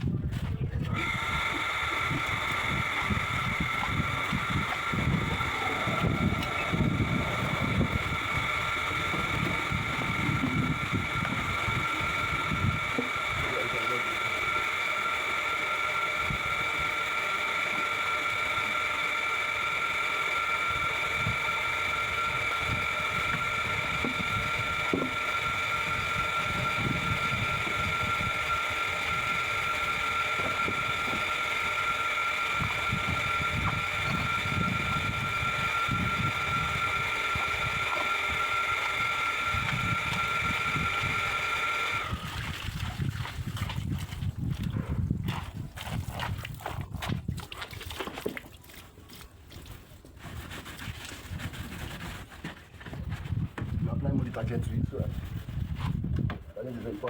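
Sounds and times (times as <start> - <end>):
pressure washer motor whining: 0.8 - 44.8.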